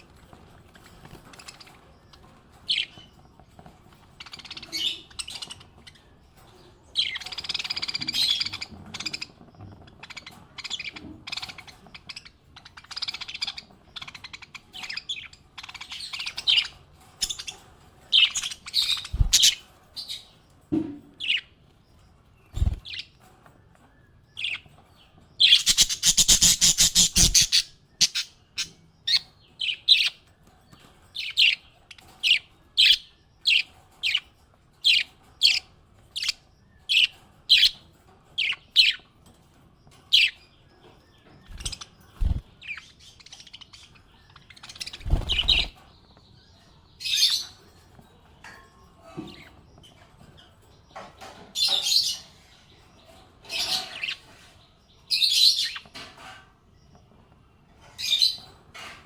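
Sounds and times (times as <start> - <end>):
parrot chirping: 25.5 - 28.3.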